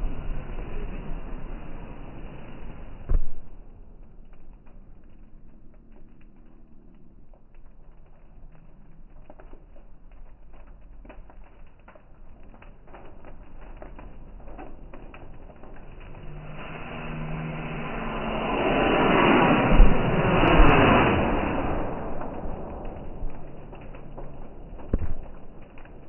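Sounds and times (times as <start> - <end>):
fireworks crackles and pops: 0.0 - 26.0
fireworks hiss: 16.4 - 24.1.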